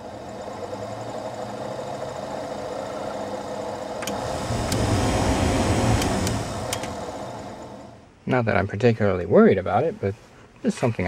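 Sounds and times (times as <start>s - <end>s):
blower fan whirring: 0.0s - 8.1s.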